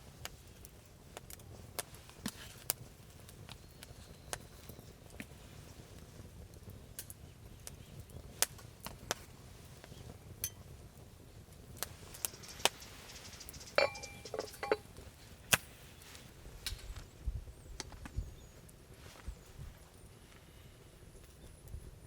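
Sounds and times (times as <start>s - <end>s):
ringing clink: 13.8s - 14.8s
sharp knocks and clicks: 13.8s - 14.8s.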